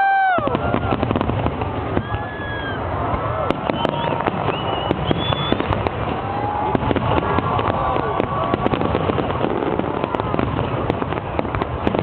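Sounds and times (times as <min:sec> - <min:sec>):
fireworks cracks and bangs: 0:00.0 - 0:12.0
whistling fireworks: 0:00.0 - 0:12.0.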